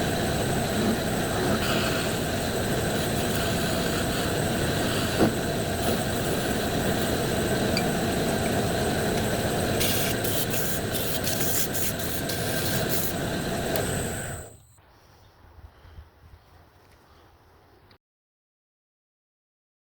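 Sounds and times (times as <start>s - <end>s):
wood lathe running: 0.0s - 14.6s
turning tool scraping wood: 0.6s - 14.1s.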